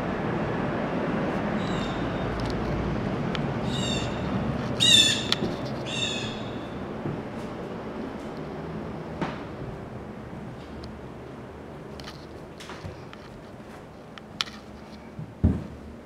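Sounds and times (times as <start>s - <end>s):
outdoor city hum: 0.0s - 16.0s
bird calling: 3.6s - 4.2s, 4.8s - 6.8s.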